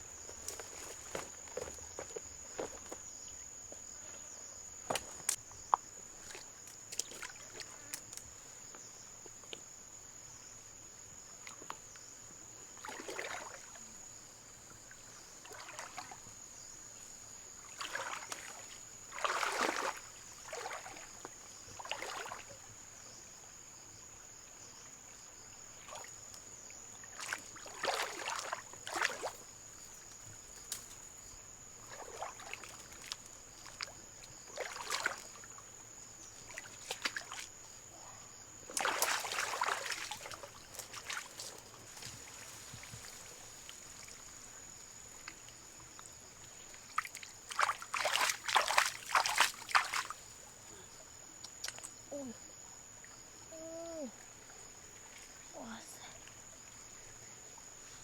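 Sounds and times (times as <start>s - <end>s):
water sloshing: 12.8s - 13.8s, 15.4s - 16.3s, 17.6s - 22.6s, 26.9s - 37.6s, 38.7s - 50.6s.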